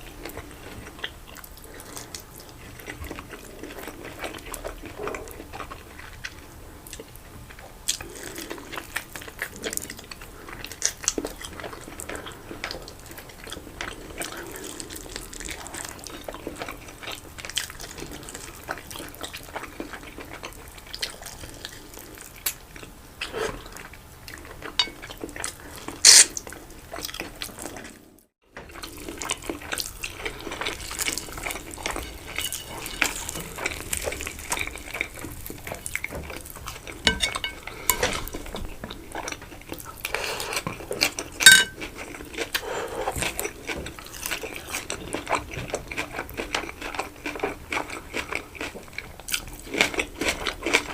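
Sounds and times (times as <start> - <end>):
person chewing food: 0.0 - 50.9
cutlery clinking on a plate: 24.8 - 25.1, 37.1 - 38.2, 41.4 - 41.8.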